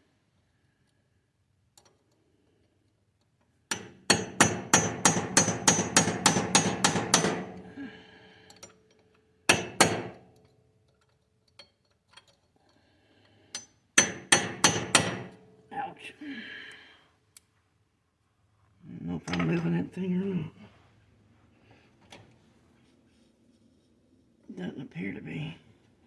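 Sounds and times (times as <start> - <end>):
hammer striking steel punch: 3.7 - 7.6, 9.5 - 10.2, 14.0 - 15.4.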